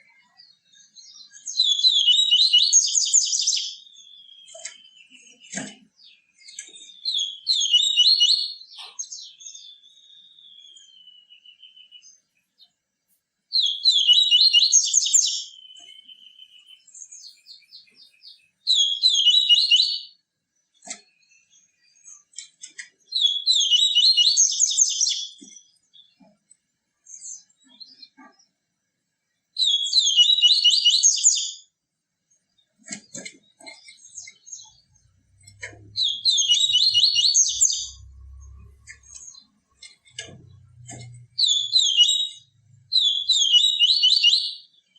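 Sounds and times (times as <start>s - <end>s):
buzzy chattering bird song: 29.6s - 31.6s, 32.9s - 44.9s.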